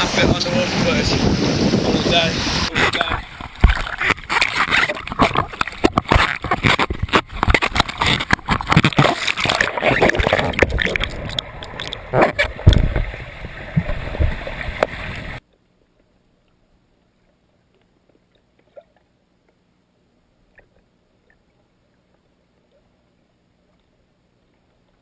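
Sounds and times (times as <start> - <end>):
whirlpool water splashing and gurgling: 0.0 - 15.5
knocks and crackles: 2.7 - 15.4.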